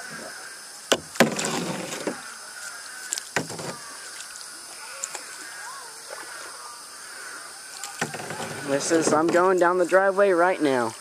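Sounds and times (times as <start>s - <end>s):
water splashing and rushing: 0.0s - 11.0s
paddle knocking against boat: 0.9s - 2.2s, 3.4s - 3.9s, 8.0s - 9.7s.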